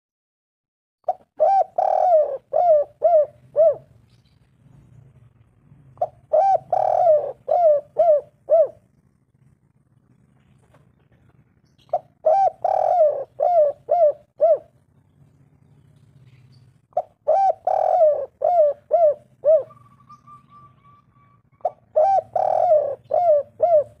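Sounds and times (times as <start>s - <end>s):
dove cooing: 1.0s - 4.0s, 5.9s - 9.2s, 11.0s - 14.8s, 16.3s - 24.0s.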